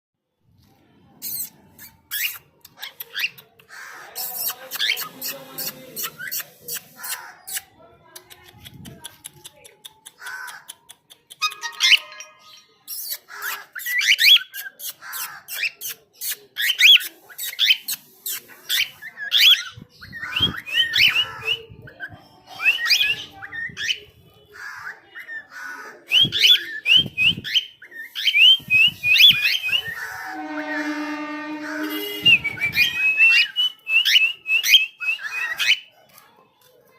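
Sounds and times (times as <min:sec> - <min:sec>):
bird chirping and squawking: 0:01.2 - 0:07.8, 0:10.2 - 0:35.9
steady whistled note: 0:28.4 - 0:34.4.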